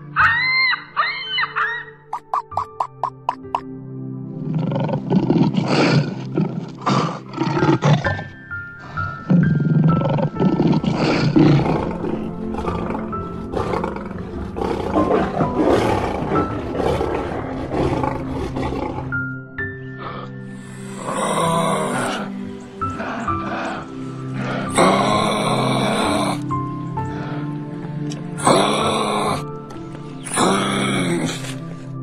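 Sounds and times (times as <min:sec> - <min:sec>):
background music with sustained notes: 0:00.0 - 0:32.0
lion roaring: 0:04.4 - 0:08.3, 0:09.1 - 0:19.3, 0:20.0 - 0:26.4, 0:28.4 - 0:29.5, 0:30.2 - 0:31.6.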